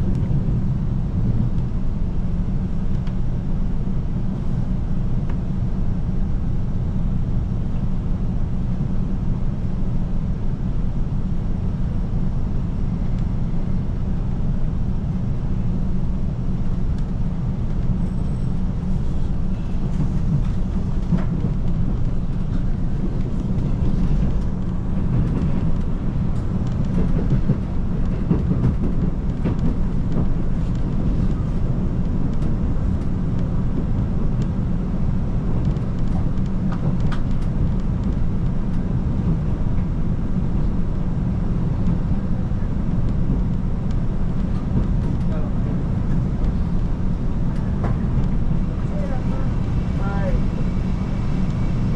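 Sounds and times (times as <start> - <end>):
diesel train rumbling on rails: 0.0 - 51.9.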